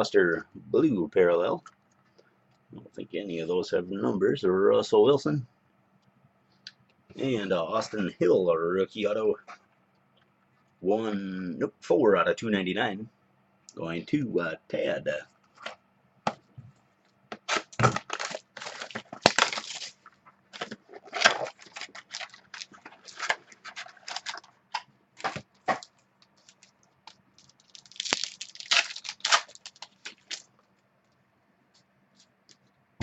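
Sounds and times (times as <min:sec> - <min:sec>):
cards rustling: 0:17.4 - 0:30.5
wrapper crinkling: 0:17.5 - 0:30.7.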